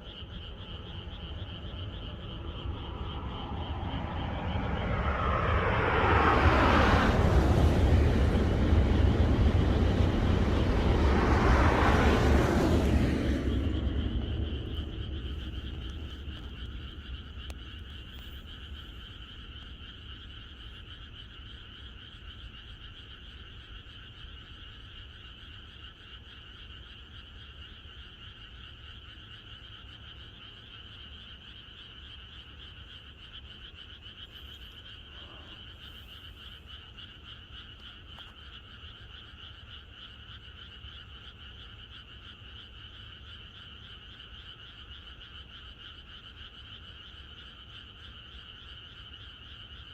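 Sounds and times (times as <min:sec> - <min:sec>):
frogs calling in chorus: 0:00.0 - 0:04.9, 0:13.7 - 0:49.9
low rumble: 0:00.5 - 0:19.0.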